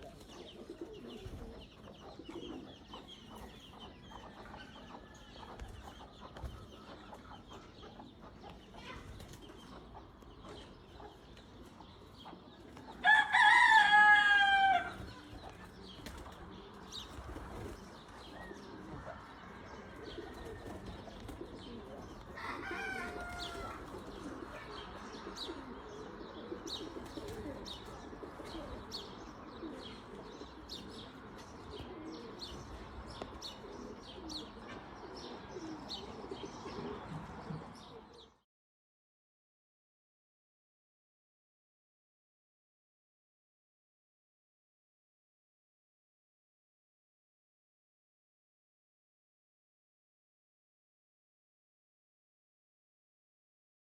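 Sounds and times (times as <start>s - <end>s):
rooster crowing: 13.0s - 15.0s, 22.4s - 23.9s.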